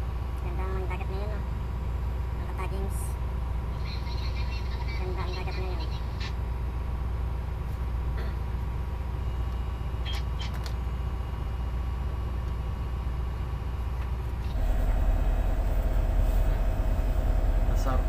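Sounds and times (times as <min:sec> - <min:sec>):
hum: 0:05.8 - 0:18.0
tugboat engine droning: 0:10.9 - 0:18.0.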